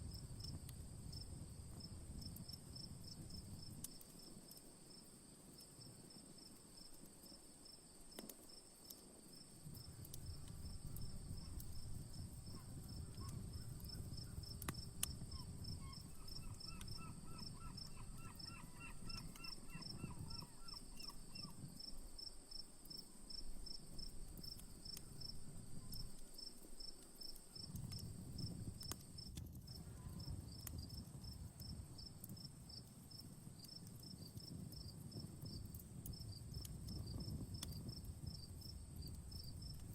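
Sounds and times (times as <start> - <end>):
campfire crackling: 0.0 - 39.9
crickets chirping: 0.1 - 39.9.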